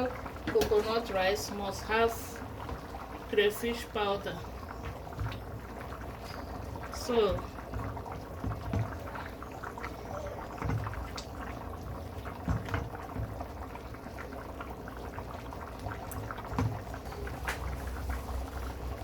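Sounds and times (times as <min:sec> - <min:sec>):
pot of rice bubbling: 0:00.0 - 0:19.0.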